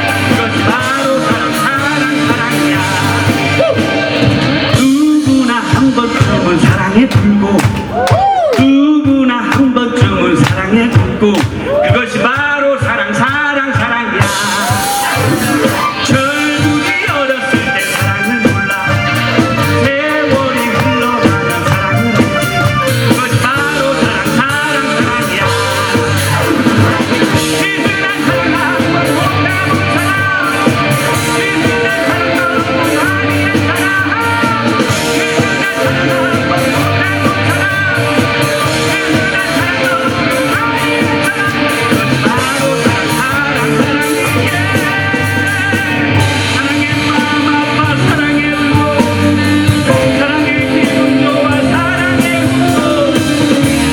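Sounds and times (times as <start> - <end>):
lead electric guitar: 0.0 - 11.9, 13.7 - 53.9
drum kit and bass beat: 0.0 - 53.9.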